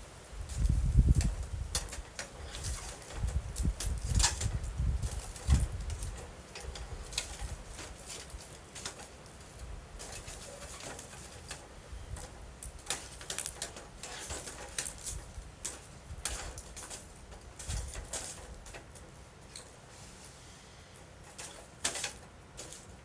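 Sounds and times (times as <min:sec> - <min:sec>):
low rumble of flames: 0:00.0 - 0:21.8.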